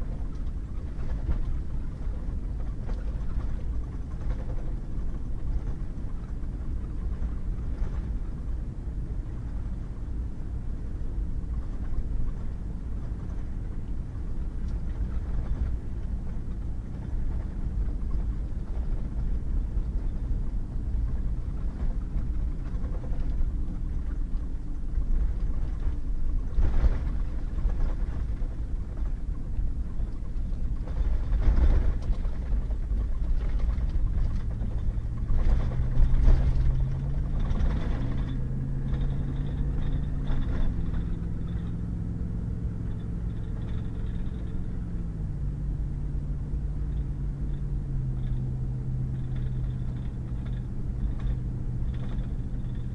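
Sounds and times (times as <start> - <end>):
truck driving on wet gravel: 0.0 - 52.9
vehicle jolts: 21.0 - 42.0.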